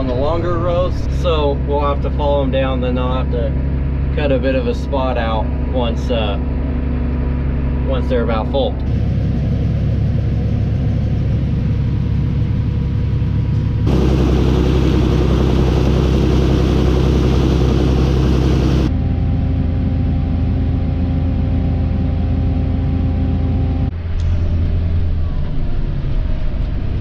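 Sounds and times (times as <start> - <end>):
tractor engine running: 0.0 - 20.1
loud rushing noise: 13.9 - 18.9.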